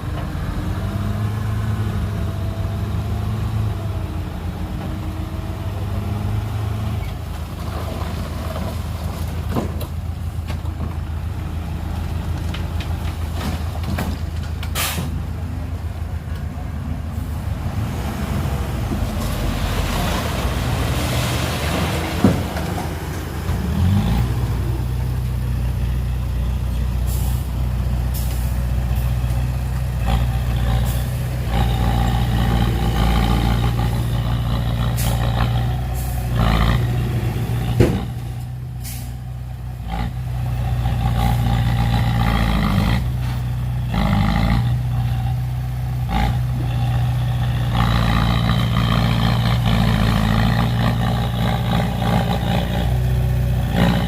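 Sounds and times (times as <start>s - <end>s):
heavy diesel engines running: 0.0s - 54.0s
sharp knocks: 37.7s - 38.2s.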